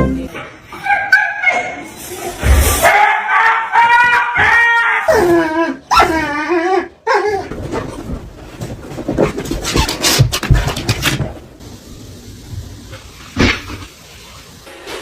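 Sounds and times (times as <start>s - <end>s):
dog whining and howling: 2.8s - 7.9s.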